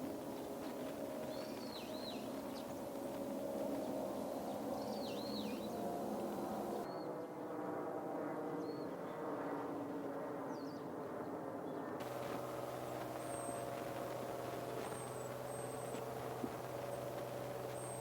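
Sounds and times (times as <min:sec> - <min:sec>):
low background hum: 0:00.0 - 0:06.9, 0:12.0 - 0:18.0
wild birds calling: 0:01.2 - 0:06.9, 0:12.0 - 0:18.0.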